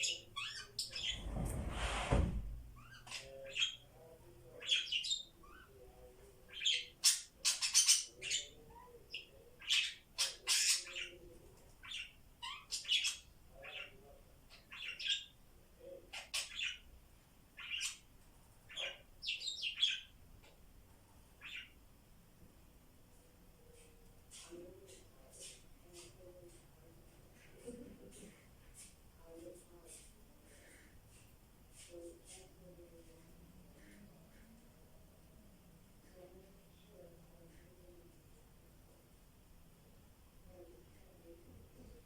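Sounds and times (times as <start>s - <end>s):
budgies soft warbling chatter: 2.8s - 16.9s, 17.6s - 20.2s.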